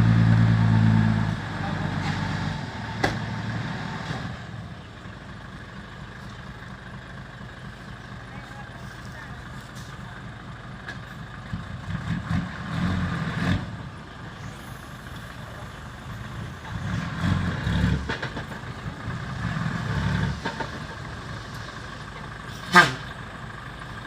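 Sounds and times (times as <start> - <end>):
diesel truck engine revving: 0.0 - 5.8, 11.4 - 24.0.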